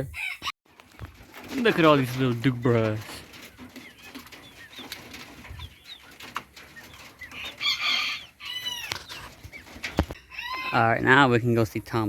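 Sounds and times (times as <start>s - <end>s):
chicken squawk: 0.0s - 0.5s, 7.2s - 10.8s
chickens clucking: 0.0s - 12.0s.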